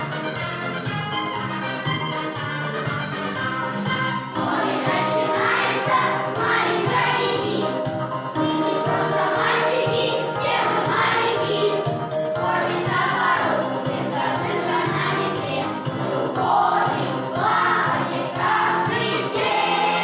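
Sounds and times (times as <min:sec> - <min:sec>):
instrumental accompaniment with beat: 0:00.0 - 0:20.0
children's choir singing: 0:04.3 - 0:20.0.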